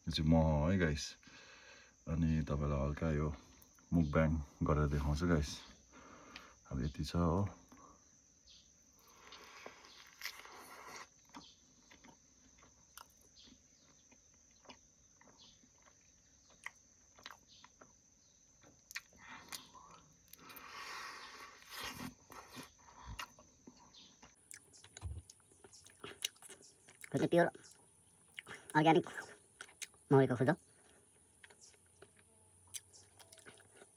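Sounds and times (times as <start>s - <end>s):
wet chewing and mouth clicks: 9.0s - 33.9s.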